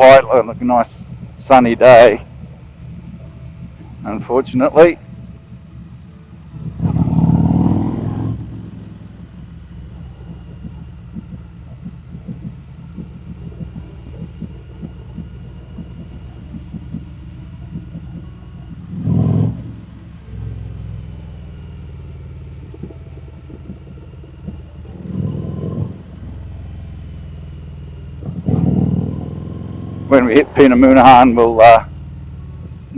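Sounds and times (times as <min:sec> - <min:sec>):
motorcycle engine running: 0:00.0 - 0:32.9.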